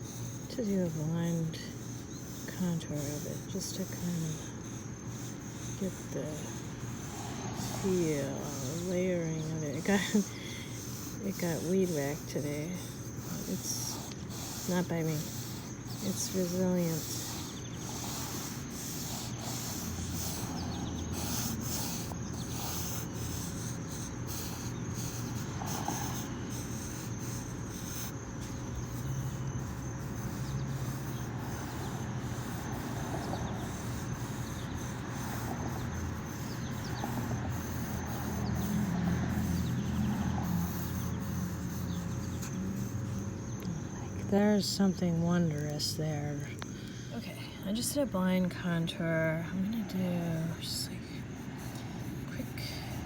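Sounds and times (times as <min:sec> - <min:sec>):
insects chirping: 0:00.0 - 0:53.0
pen scratching on paper: 0:05.2 - 0:29.2.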